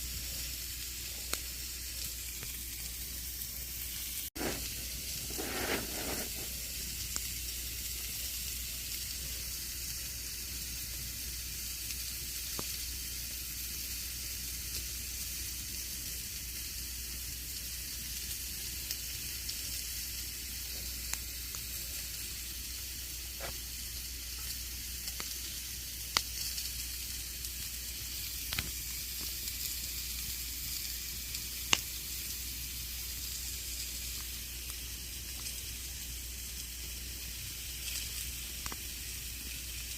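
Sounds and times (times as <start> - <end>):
campfire crackling: 0.1 - 39.9
burning wood popping: 1.1 - 7.3, 20.4 - 22.5, 23.3 - 23.7, 24.3 - 29.8, 31.2 - 32.4, 33.7 - 39.9.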